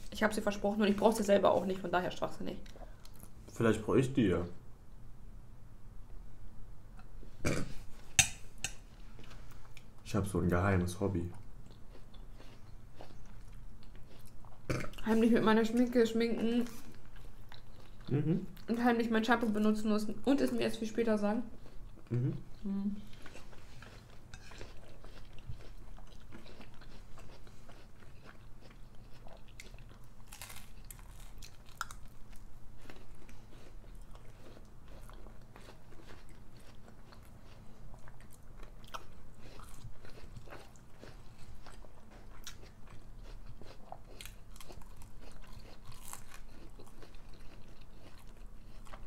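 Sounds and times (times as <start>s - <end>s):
chewing and crisp crunching: 11.2s - 18.8s, 21.5s - 49.0s.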